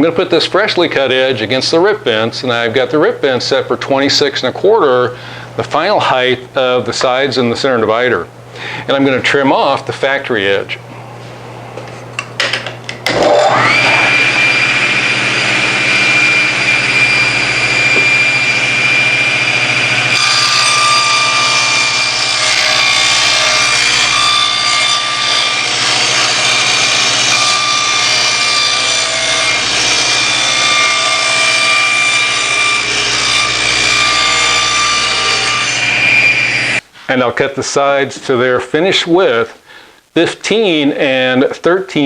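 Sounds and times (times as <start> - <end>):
table saw motor whine: 13.0 - 36.8.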